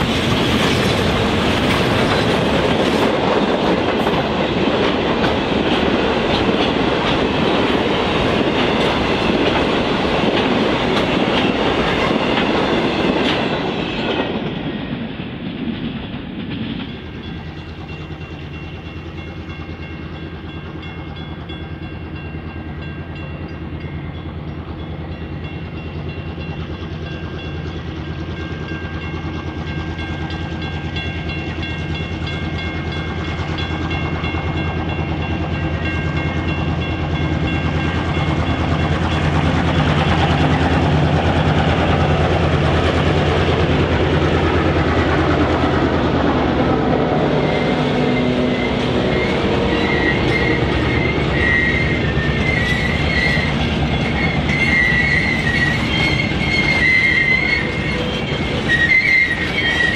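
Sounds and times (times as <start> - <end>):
wagons rolling on rails: 0.0 - 18.0, 30.3 - 59.9
diesel locomotive engines: 0.0 - 59.9.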